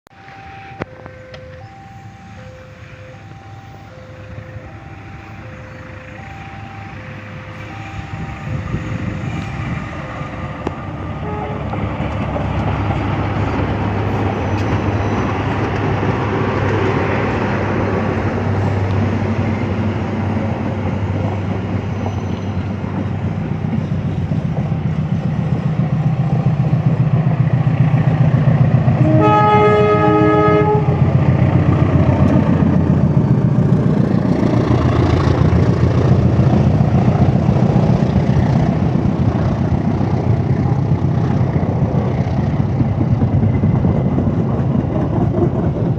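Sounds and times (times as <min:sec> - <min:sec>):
locomotive engine drone: 0:00.1 - 0:45.9
train rail noise: 0:00.1 - 0:45.9
two-tone electronic warning beeps: 0:00.2 - 0:10.0
locomotive horn: 0:11.1 - 0:11.8, 0:29.0 - 0:31.2.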